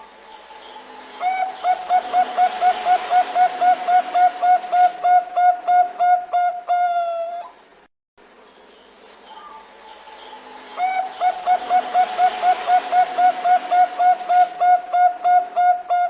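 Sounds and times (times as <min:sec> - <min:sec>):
steady hiss: 0:00.0 - 0:06.9, 0:07.5 - 0:16.0
dove cooing: 0:01.2 - 0:07.6, 0:10.4 - 0:16.0.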